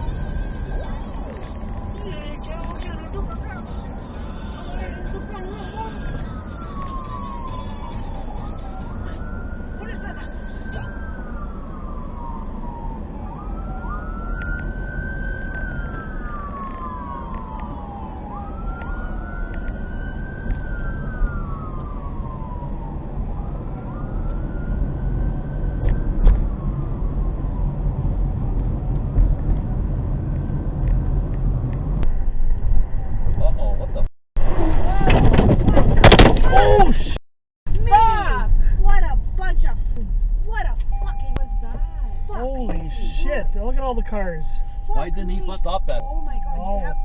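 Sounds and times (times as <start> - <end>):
emergency vehicle siren wailing: 0.0 - 30.8, 40.9 - 47.0
low rumble: 14.8 - 47.0.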